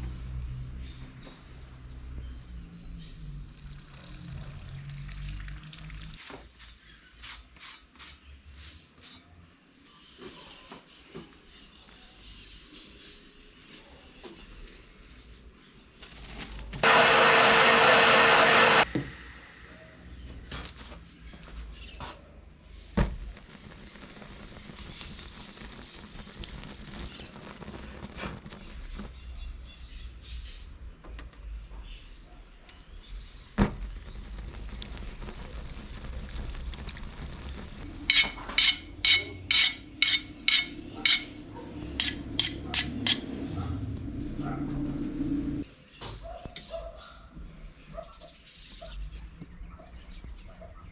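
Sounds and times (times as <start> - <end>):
hammer on steel anvil: 38.1 - 41.4, 42.0 - 43.3.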